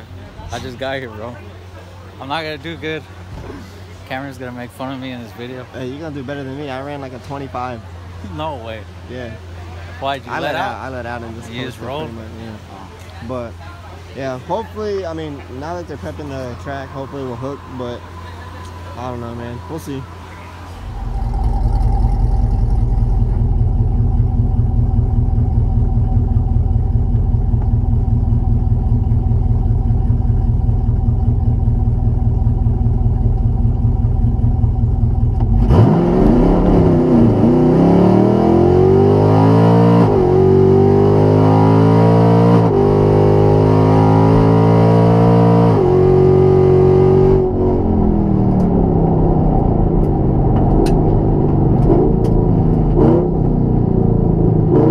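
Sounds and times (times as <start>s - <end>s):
car engine idling: 0.0s - 39.4s, 45.9s - 54.9s
car engine accelerating through gears: 16.6s - 54.9s.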